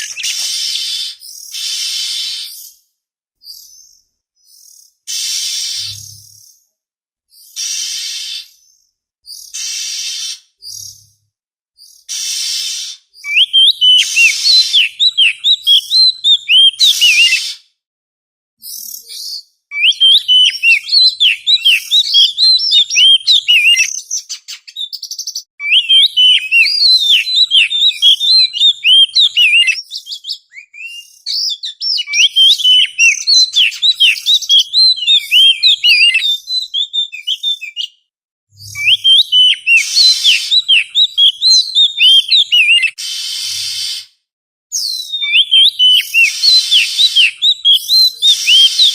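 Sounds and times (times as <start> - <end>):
bird singing whistled chirps: 0.0 - 2.8, 7.4 - 11.2, 11.8 - 17.6, 18.6 - 38.0, 38.6 - 44.1, 44.8 - 48.9
harsh rasping bird notes: 9.6 - 10.6, 12.1 - 13.1, 13.8 - 16.1, 43.0 - 44.2, 45.8 - 47.4.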